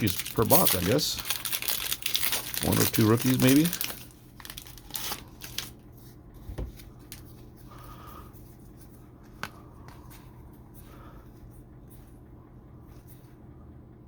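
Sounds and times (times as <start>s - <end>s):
cards clicking and rustling: 0.0s - 5.8s
faint low hum: 0.0s - 14.0s.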